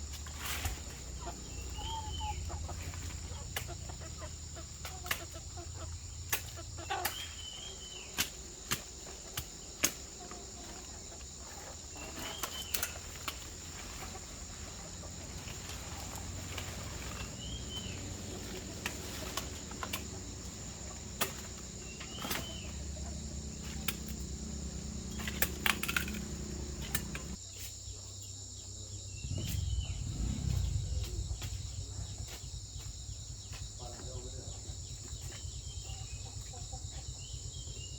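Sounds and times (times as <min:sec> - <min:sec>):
cricket-like insect chorus: 0:00.0 - 0:37.9
low rumble: 0:29.2 - 0:32.8.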